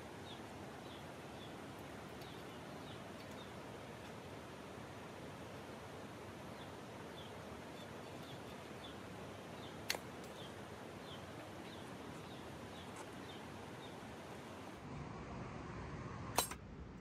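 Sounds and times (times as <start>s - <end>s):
small bird chirping: 0.0s - 4.1s, 6.5s - 14.7s
steady outdoor hiss: 0.0s - 17.0s
sharp click: 16.4s - 16.6s.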